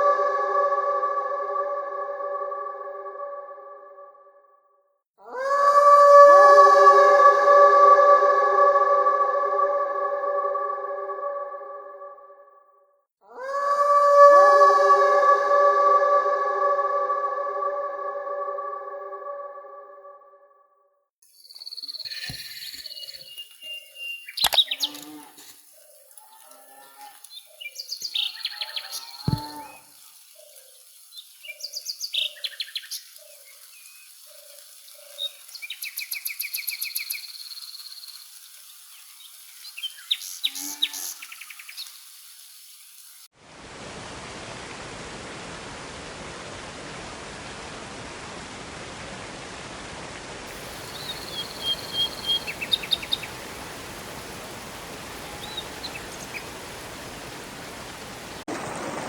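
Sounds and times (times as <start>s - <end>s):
birds chirping and trilling: 21.4s - 42.1s, 50.5s - 58.4s
flowing water rushing: 22.0s - 59.0s.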